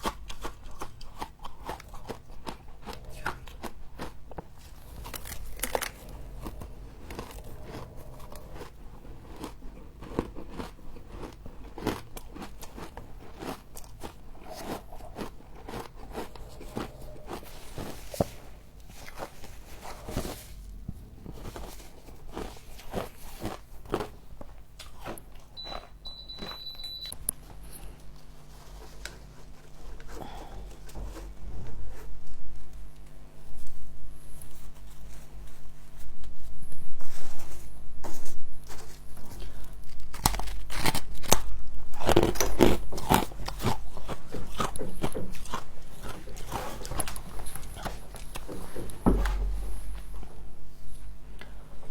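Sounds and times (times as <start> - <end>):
frost crunching while chewed: 0.0 - 33.8, 38.2 - 50.3
thin high beep: 25.6 - 27.1.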